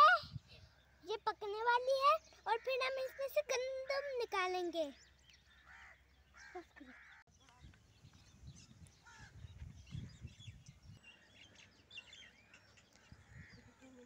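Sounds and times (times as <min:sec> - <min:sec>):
birds chirping and calling: 0:00.0 - 0:14.0
low rumbles on microphone: 0:07.6 - 0:11.0.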